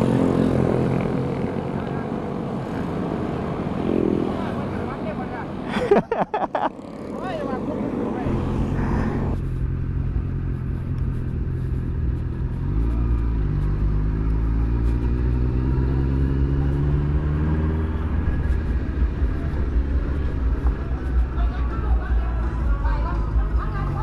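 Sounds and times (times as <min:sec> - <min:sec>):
motorcycle engine accelerating: 0:08.2 - 0:24.0.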